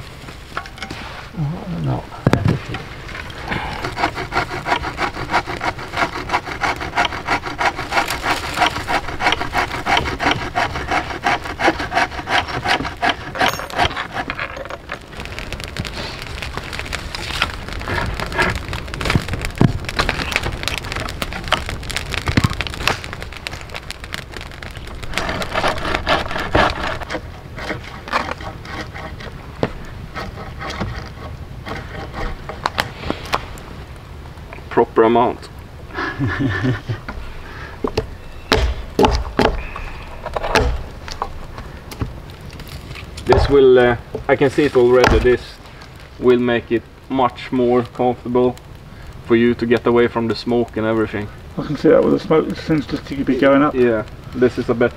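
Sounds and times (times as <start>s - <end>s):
hand saw cutting wood: 3.7s - 14.4s, 25.2s - 29.4s, 30.1s - 32.7s.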